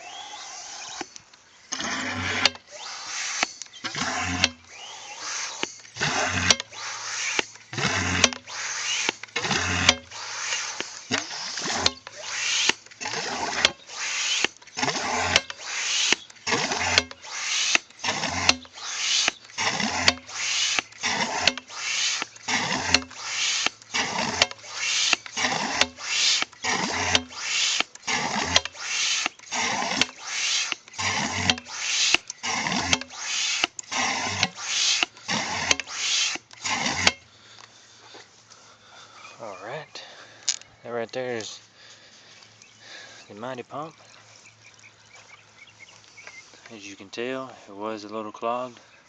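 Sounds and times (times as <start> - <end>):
hand pump gushing strokes: 0.0 - 37.6.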